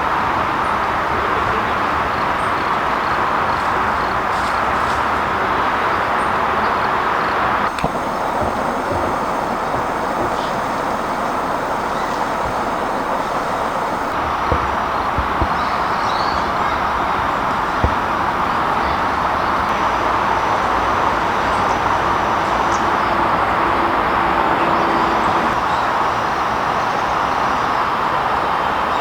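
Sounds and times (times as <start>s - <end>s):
gas lantern hissing: 7.7s - 17.6s.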